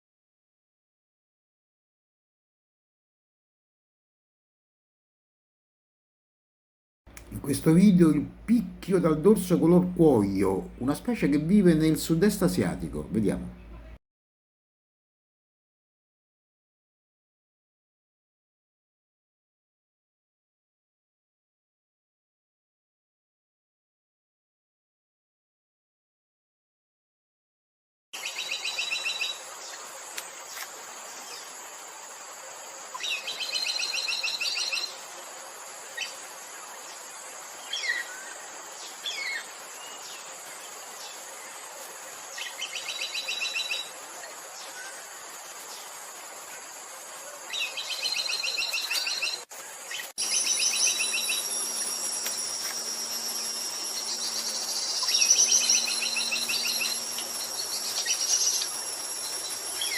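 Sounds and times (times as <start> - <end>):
insect background: 7.1 - 14.0, 28.2 - 59.9
high insect drone: 28.2 - 59.9
woodpecker trilling: 50.0 - 59.9.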